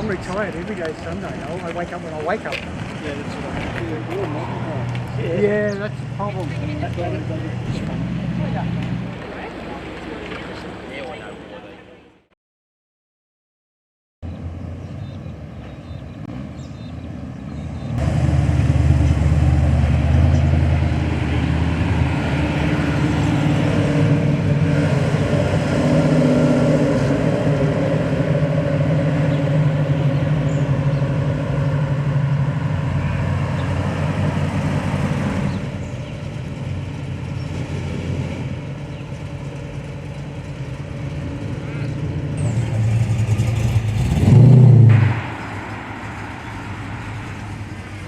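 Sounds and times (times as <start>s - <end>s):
vehicle engine running: 27.5s - 48.0s.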